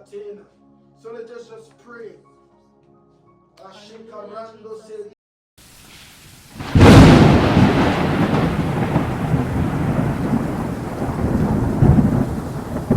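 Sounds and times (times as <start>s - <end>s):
rain hissing: 5.6s - 12.9s
rolling rumble of thunder: 6.6s - 12.9s
thunderclap: 6.6s - 12.9s.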